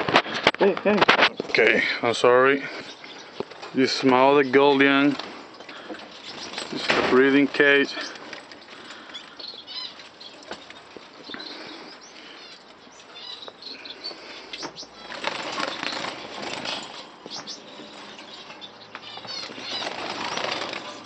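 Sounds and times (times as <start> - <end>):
finches fluttering wings: 15.0 - 17.0, 19.2 - 21.0.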